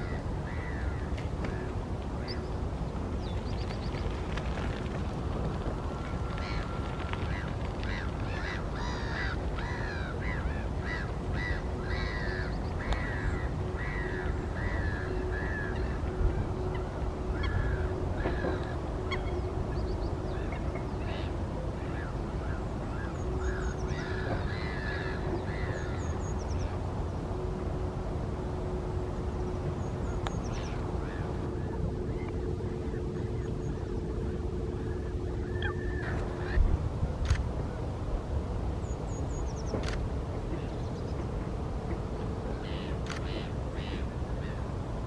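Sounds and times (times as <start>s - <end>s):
faint hum: 0.0s - 45.0s
birds honking harshly: 6.3s - 19.7s, 20.3s - 27.5s.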